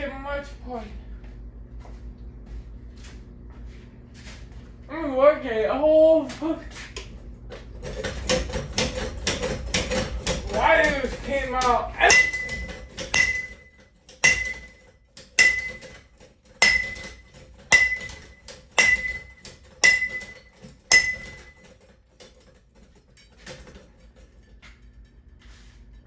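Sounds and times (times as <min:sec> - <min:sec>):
heavy blows on metal: 0:11.7 - 0:14.8, 0:15.4 - 0:16.0, 0:16.6 - 0:21.6.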